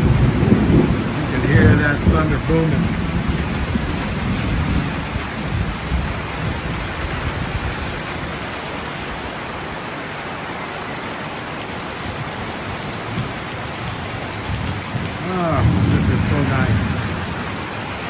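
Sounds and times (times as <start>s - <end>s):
low rumble of thunder: 0.0s - 7.9s, 13.7s - 18.0s
heavy rain pouring: 0.0s - 18.0s.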